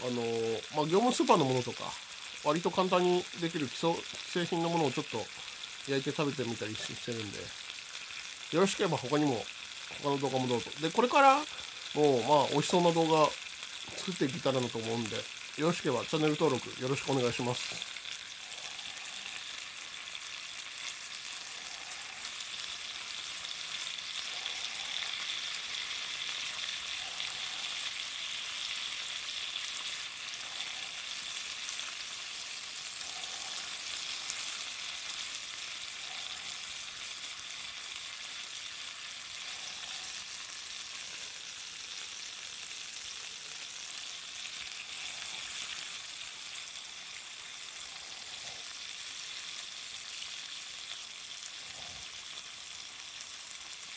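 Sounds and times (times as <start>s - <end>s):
food sizzling in a skillet: 0.0s - 53.9s.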